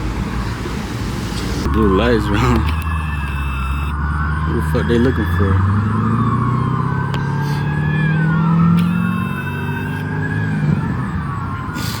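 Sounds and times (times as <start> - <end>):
idling vehicles rumble: 0.0 - 12.0
police sirens wailing: 0.0 - 12.0
brief steady tone: 2.7 - 4.0, 8.8 - 10.0.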